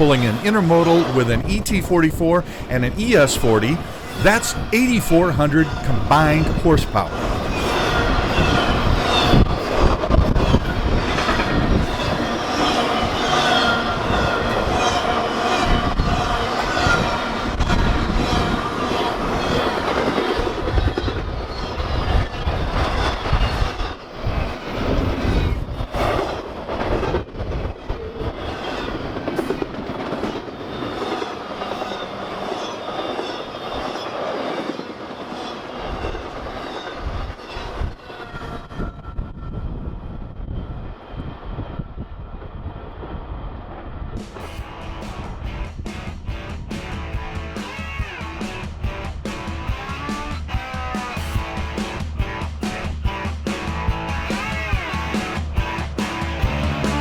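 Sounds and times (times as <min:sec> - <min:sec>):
freight train rumbling past: 0:00.0 - 0:39.6
high wheel squeal: 0:07.2 - 0:22.1.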